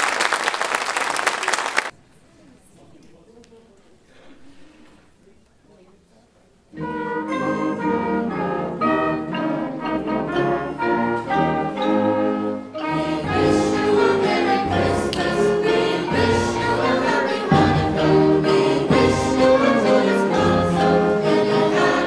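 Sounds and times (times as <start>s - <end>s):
choir singing: 6.8s - 22.0s
concert band playing: 6.9s - 22.0s.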